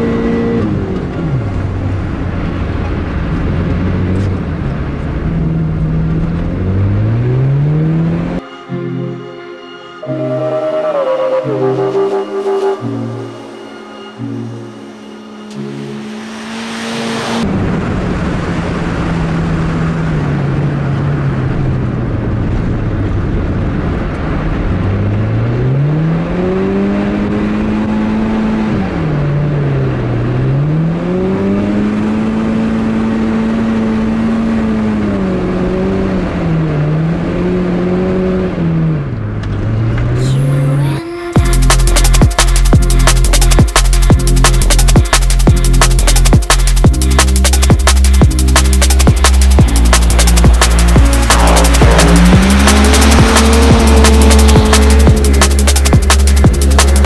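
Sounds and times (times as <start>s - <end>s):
car engine revving: 0.0s - 8.5s, 10.0s - 57.0s
road rushing noise: 0.0s - 57.0s
music: 8.4s - 16.7s, 40.2s - 57.0s.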